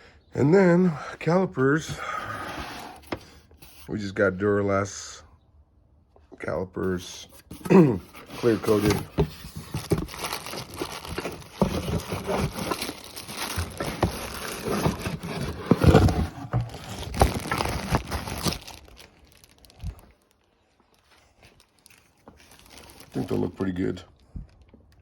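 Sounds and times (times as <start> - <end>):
packaging crinkling and rustling: 7.4 - 25.0.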